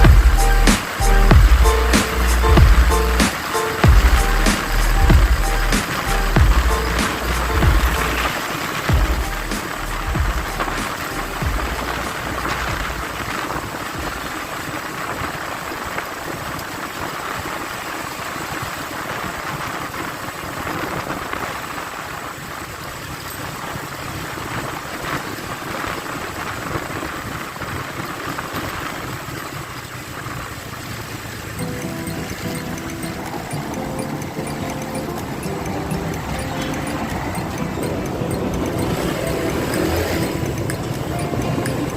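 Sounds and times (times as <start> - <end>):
motorcycle engine running: 0.0 - 8.3, 8.9 - 14.4, 29.2 - 41.9
wind and road noise: 0.0 - 41.9.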